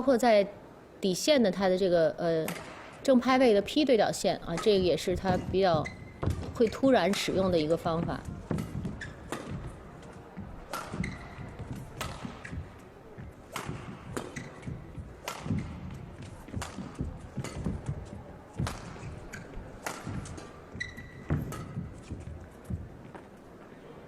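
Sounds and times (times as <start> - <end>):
rackets striking shuttlecock: 2.5 - 3.0, 4.4 - 22.8
shoe squeaks on court: 5.7 - 6.8, 8.5 - 9.8, 10.6 - 12.7, 13.5 - 15.6, 20.2 - 22.3
footfalls: 7.4 - 23.3.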